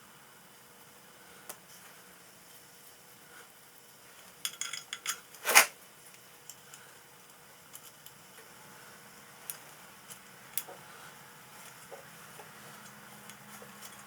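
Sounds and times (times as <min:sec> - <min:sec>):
metal tools clinking: 0:04.4 - 0:05.7.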